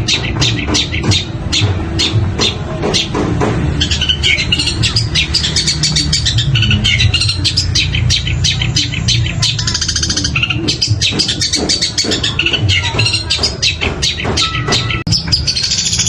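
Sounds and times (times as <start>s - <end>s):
shrike singing chirping notes: 3.8s - 16.0s.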